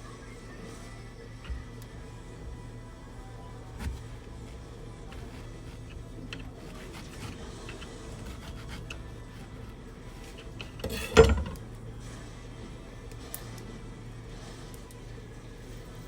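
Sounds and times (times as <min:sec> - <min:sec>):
faint background music: 0:00.0 - 0:16.0
handling noises: 0:03.5 - 0:11.8
scrape and knock: 0:03.8 - 0:11.6.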